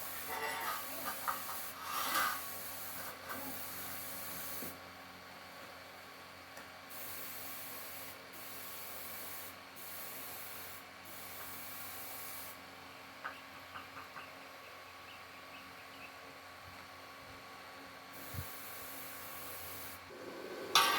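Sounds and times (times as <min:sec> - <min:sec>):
welding arc crackling and hissing: 0:00.0 - 0:04.9, 0:06.9 - 0:12.7, 0:18.2 - 0:20.9.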